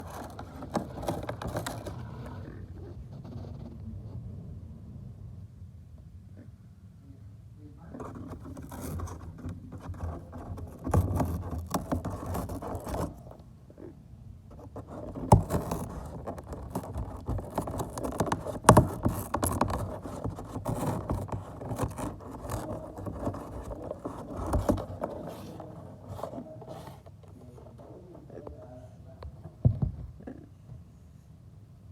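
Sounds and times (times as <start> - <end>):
parrot scratching at a box: 0.0 - 3.8, 7.9 - 30.4
rustling: 0.0 - 4.3, 7.8 - 31.1.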